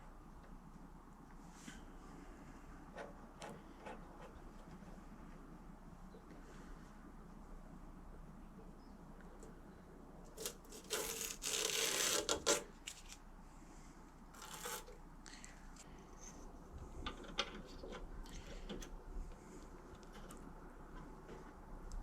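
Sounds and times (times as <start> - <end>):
scraping rub: 14.4 - 15.0.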